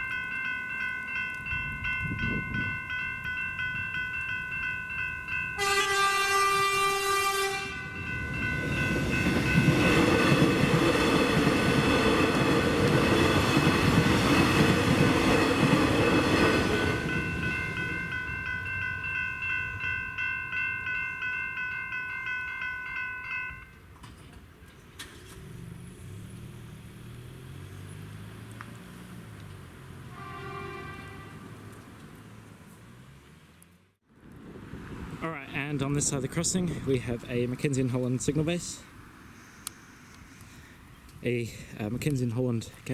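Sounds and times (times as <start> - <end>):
level crossing bells ringing: 0.0 - 6.6, 7.6 - 13.6, 15.2 - 23.8
train horn: 5.6 - 7.8, 30.1 - 31.5
train wheels rushing and rattling: 8.2 - 18.0.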